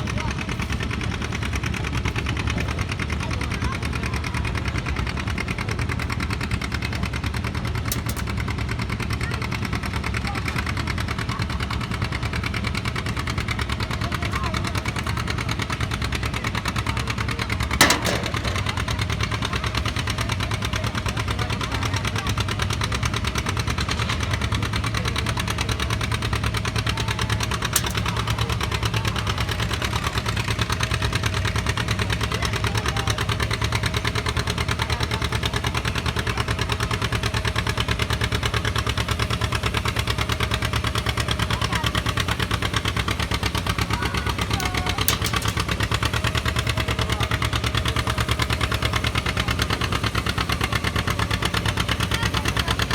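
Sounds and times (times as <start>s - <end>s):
tractor engine idling: 0.0s - 52.9s.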